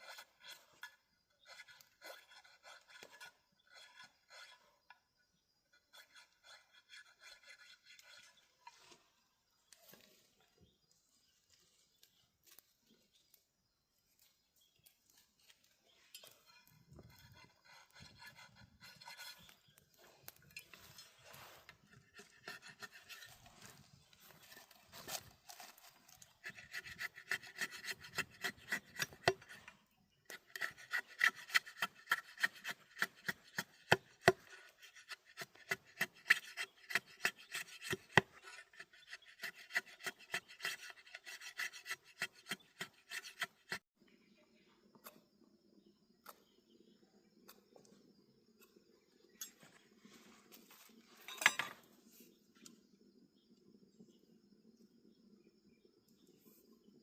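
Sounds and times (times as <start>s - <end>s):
dry rasping strokes: 0.0s - 5.0s, 5.7s - 9.2s, 16.2s - 43.9s.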